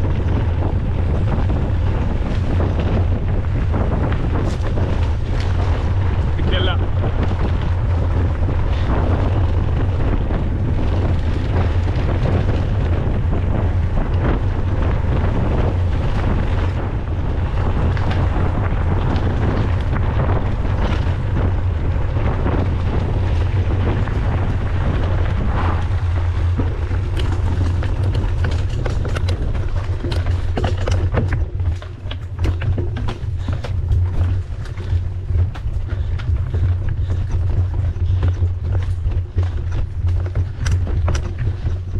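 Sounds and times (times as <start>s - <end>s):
bike tyres on trail: 0.0s - 41.9s
wind buffeting microphone: 0.0s - 41.9s
sharp clicks and knocks: 27.2s - 41.8s.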